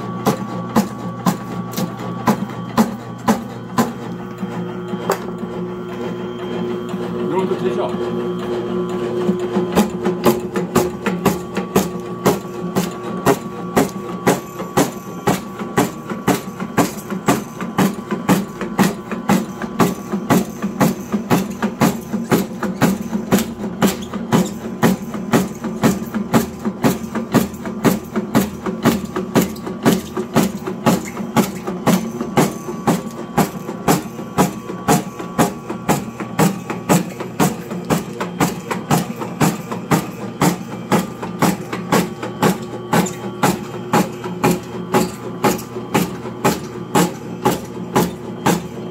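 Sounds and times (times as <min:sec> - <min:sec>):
cutting machine motor hum: 0:00.0 - 0:27.0.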